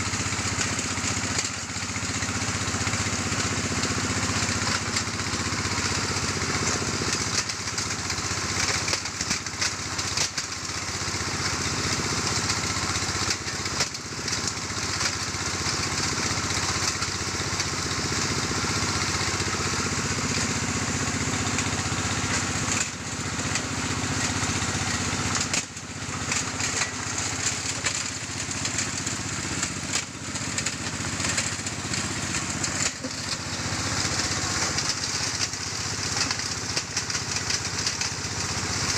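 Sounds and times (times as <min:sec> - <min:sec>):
motor drone: 0:16.6 - 0:38.9.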